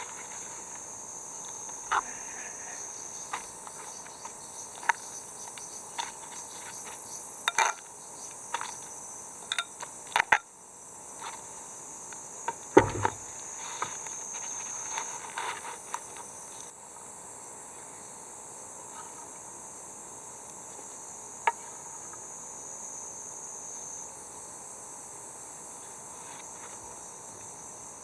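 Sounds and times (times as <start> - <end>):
clicks and knocks of handling: 12.8 - 13.2
dull thump: 12.8 - 13.3.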